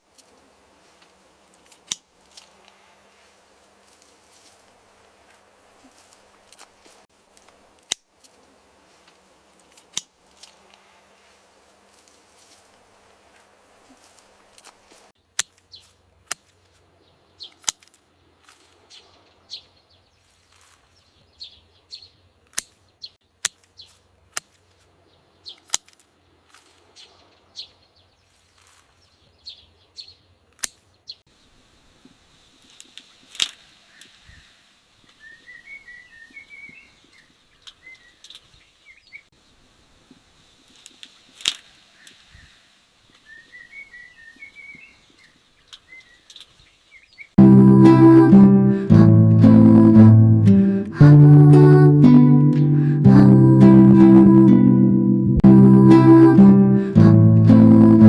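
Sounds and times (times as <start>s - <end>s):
small bird twittering: 35.2s - 39.3s, 43.2s - 47.3s
short high chirps: 47.4s - 58.0s.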